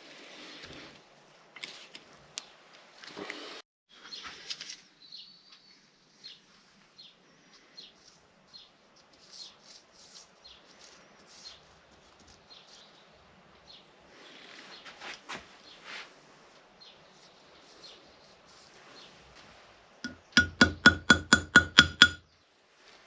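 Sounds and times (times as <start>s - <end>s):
small birds chirping: 3.9s - 15.0s, 16.8s - 19.2s.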